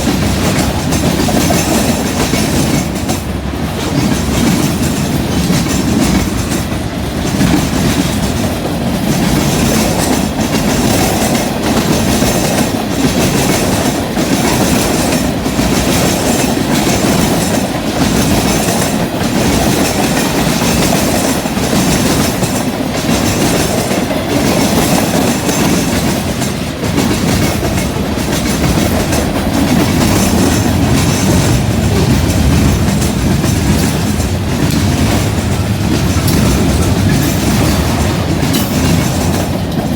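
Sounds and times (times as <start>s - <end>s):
freight train wheels clattering: 0.0s - 39.9s.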